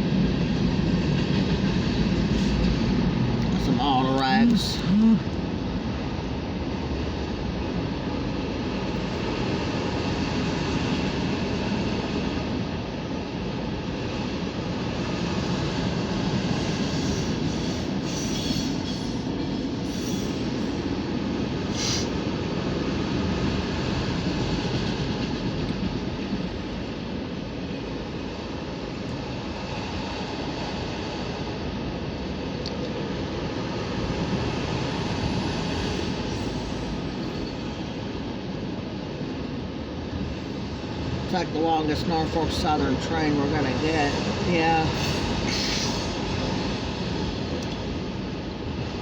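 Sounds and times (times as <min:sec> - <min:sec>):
freight cars rumbling and clattering: 0:00.0 - 0:05.7
high wheel squeals: 0:17.0 - 0:19.2, 0:19.9 - 0:20.5.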